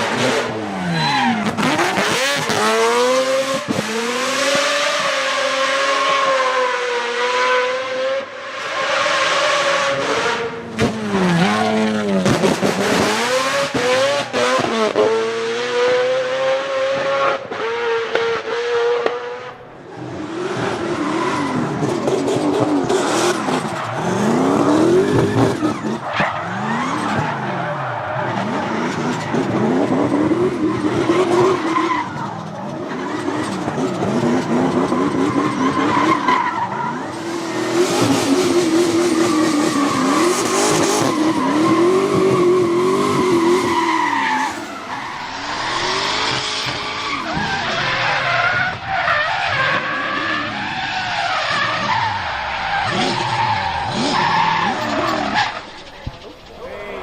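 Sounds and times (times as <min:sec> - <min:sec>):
tyres skidding and squealing: 0:00.0 - 0:07.2, 0:08.1 - 0:18.0, 0:19.4 - 0:57.0
car engine revving hard: 0:00.0 - 0:31.9.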